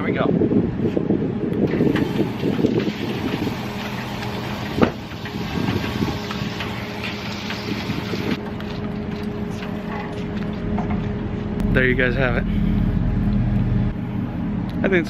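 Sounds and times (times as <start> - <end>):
hose reel motor humming: 1.7 - 11.1.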